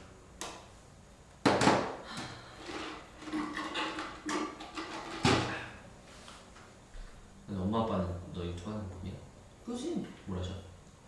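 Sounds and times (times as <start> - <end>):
objects clattering and rustling: 1.5 - 6.6.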